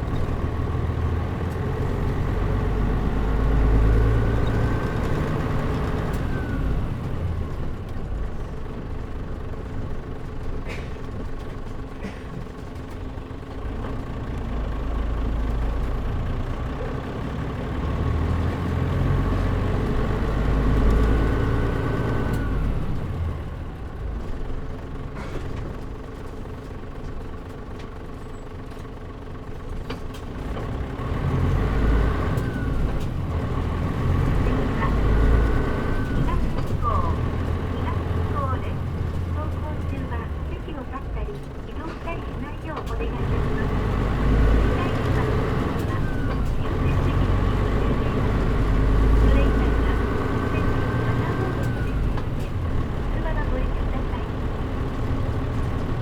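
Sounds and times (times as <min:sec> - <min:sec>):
bus diesel engine from inside: 0:00.0 - 0:56.0.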